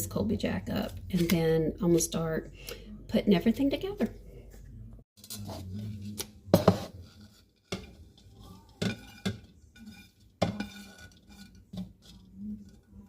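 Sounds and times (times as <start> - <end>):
metal and glassware clinking: 7.7 - 13.0.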